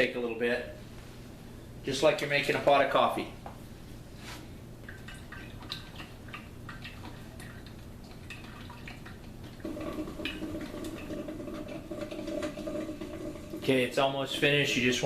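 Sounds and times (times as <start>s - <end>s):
coffee maker dripping: 4.8s - 15.0s.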